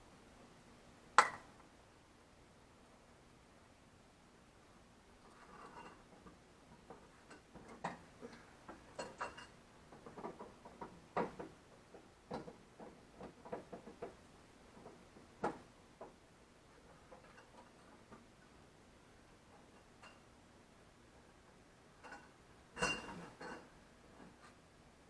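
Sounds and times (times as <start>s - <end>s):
light clicks and knocks: 6.1s - 16.2s.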